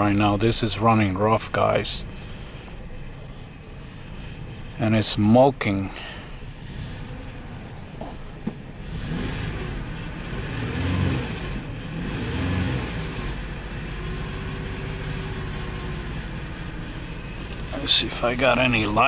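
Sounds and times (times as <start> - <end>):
car engine misfiring and revving: 6.7 - 19.0.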